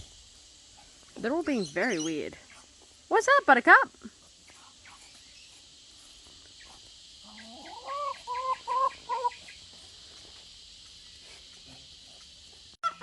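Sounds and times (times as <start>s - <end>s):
chicken call and clucks: 7.2s - 9.6s.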